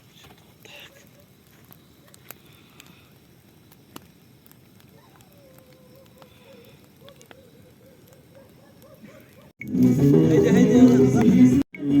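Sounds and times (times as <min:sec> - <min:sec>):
faint crackling with clicks: 0:00.0 - 0:09.6.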